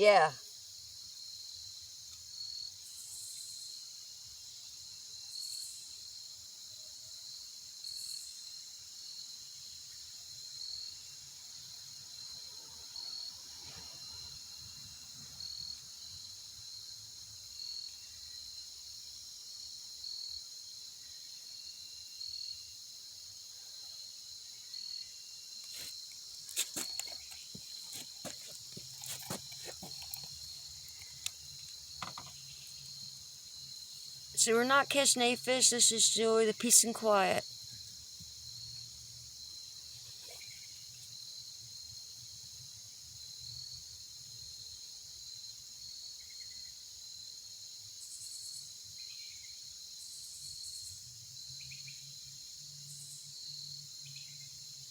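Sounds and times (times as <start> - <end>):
insects trilling: 0.0 - 54.9
regular insect chirp: 0.0 - 54.9
sharp clicks and knocks: 32.0 - 32.4.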